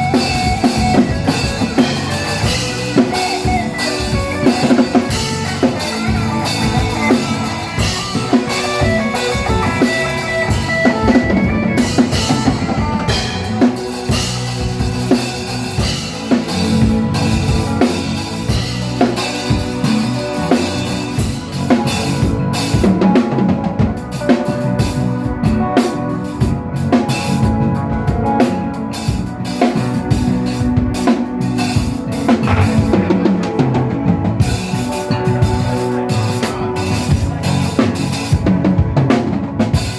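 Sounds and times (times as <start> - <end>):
sustained pitched instruments: 0.0 - 21.6, 30.1 - 36.3
drum kit beat: 0.0 - 39.9.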